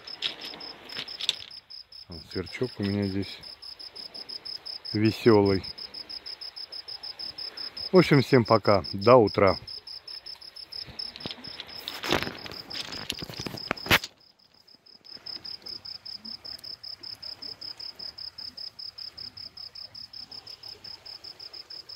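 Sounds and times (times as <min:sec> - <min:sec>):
cricket chirping: 0:00.0 - 0:21.9
rustling and clicks: 0:00.1 - 0:01.6, 0:10.3 - 0:15.8.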